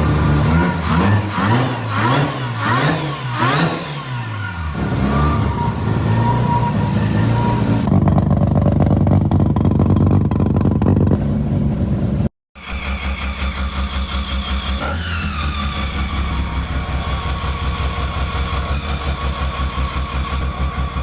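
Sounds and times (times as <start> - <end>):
rotary engine revving: 0.0 - 21.0.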